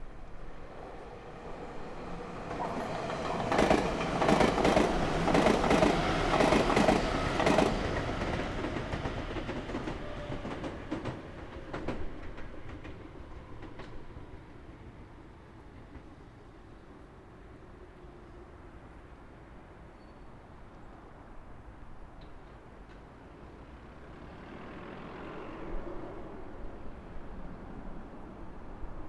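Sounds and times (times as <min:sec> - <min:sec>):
electric train passing: 0:00.0 - 0:15.9, 0:23.4 - 0:29.0
wheels clacking over rail joints: 0:02.0 - 0:14.0.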